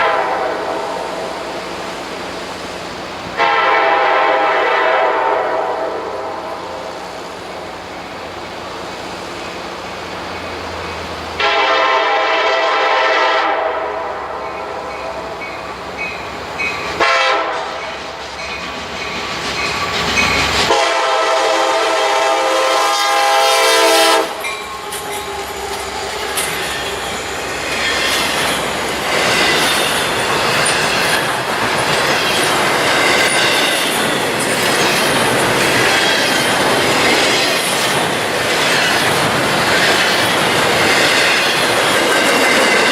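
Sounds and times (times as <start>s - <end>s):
locomotive air horn blasts: 0.0s - 1.1s, 3.4s - 6.8s, 11.4s - 14.4s, 17.0s - 18.0s, 20.7s - 26.0s
train wheels on rails: 0.0s - 42.9s
clickety-clack over rail joints: 14.4s - 20.8s, 24.2s - 42.9s.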